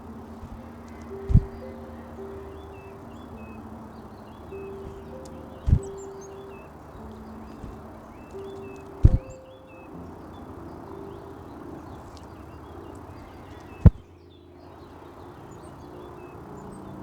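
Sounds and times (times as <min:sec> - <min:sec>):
chickadees chirping: 0:00.0 - 0:17.0.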